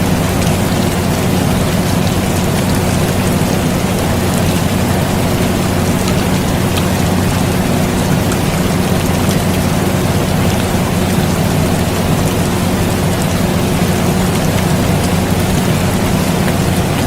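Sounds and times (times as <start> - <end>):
air conditioner humming: 0.0 - 17.0
steady rain falling: 0.0 - 17.0.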